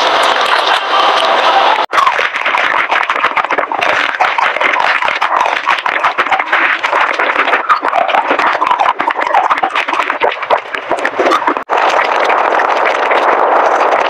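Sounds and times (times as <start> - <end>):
chewing chocolate: 1.9 - 12.1.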